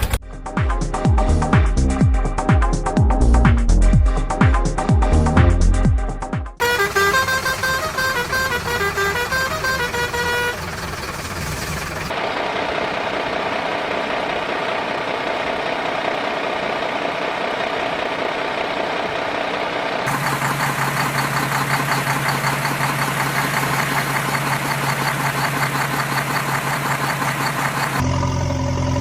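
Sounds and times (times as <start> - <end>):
engine chugging: 6.6 - 29.0
vehicle engine idling: 6.6 - 29.0.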